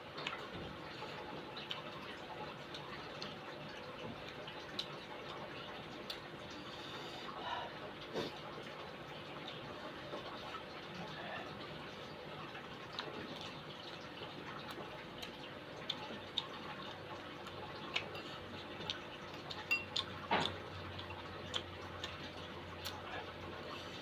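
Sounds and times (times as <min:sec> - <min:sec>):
person chewing crispy food: 0:12.8 - 0:24.0.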